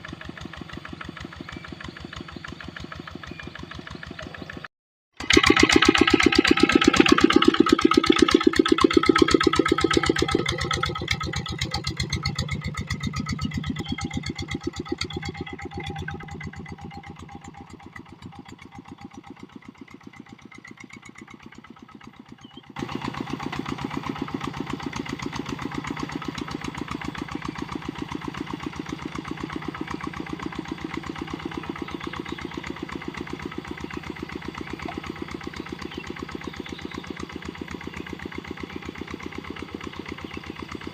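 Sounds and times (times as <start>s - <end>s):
diesel tractor engine running: 0.0s - 40.9s.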